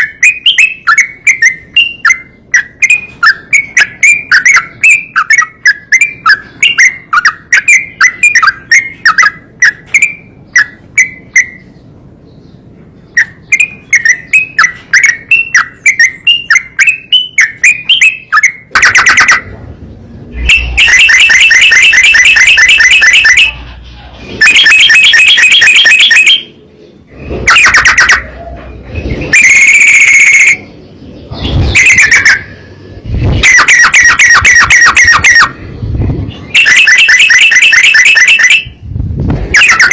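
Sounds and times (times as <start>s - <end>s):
bulbul chirping song: 0.0s - 39.9s.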